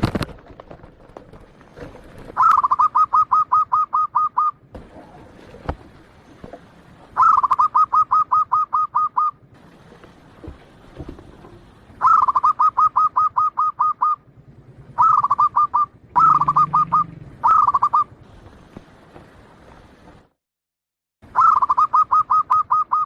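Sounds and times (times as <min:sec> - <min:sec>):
dove cooing: 0:01.8 - 0:06.0, 0:07.1 - 0:09.4, 0:11.9 - 0:14.2, 0:14.9 - 0:18.1, 0:21.4 - 0:23.0.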